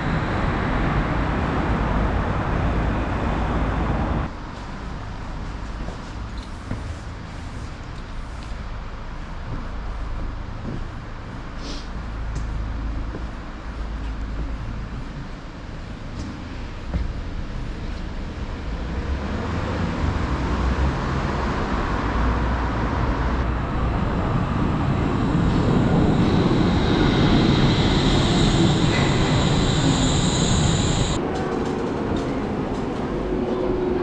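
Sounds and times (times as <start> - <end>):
suspended train rumble: 0.0 - 34.0
high whine: 23.4 - 31.3.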